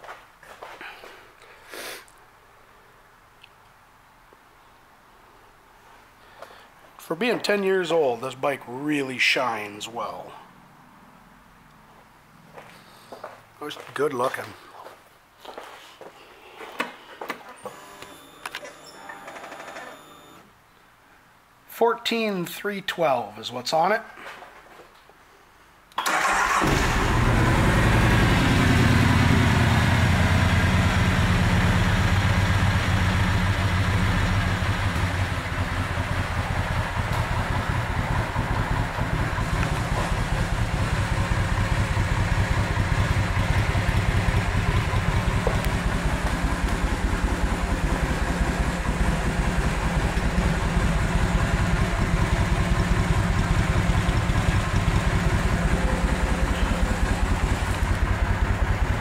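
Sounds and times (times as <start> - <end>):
motorcycle engine idling: 28.5 - 59.0.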